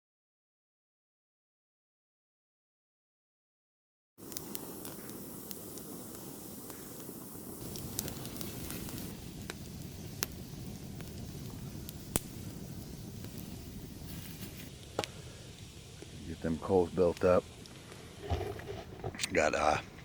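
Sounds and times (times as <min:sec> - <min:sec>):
campfire burning: 0:04.2 - 0:20.0
wood crackling and popping: 0:04.2 - 0:20.0.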